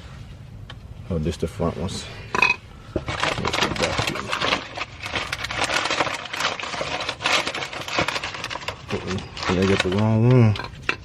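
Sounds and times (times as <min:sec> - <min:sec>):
packaging rustling: 0:02.9 - 0:11.0
rapid clicks and clinks: 0:03.1 - 0:11.0.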